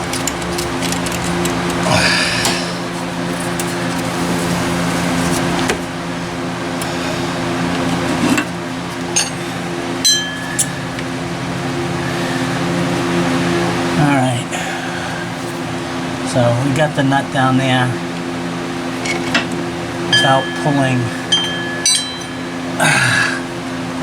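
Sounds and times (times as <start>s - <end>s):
hand tools clinking on metal: 0.0s - 2.6s, 9.1s - 9.4s, 10.0s - 11.1s, 19.0s - 22.8s
steady hum: 0.0s - 24.0s
wrench dropping with a ring: 9.2s - 9.4s, 10.0s - 10.8s, 20.1s - 22.6s.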